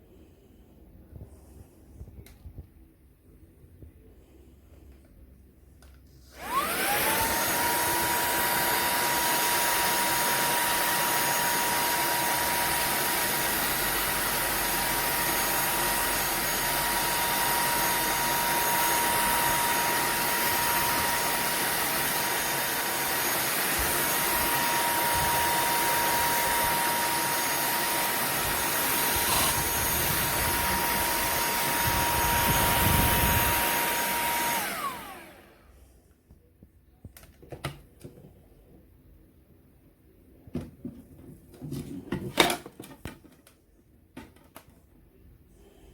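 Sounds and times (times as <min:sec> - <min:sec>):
handheld vacuum cleaner whining: 0:06.2 - 0:35.8.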